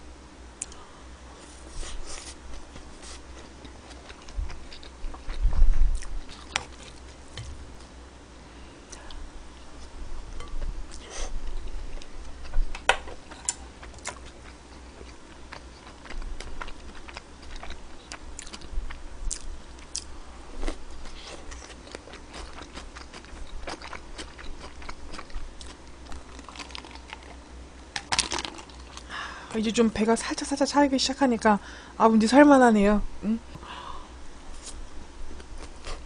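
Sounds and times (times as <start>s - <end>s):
close chewing and biting: 2.6s - 7.6s, 13.4s - 27.4s.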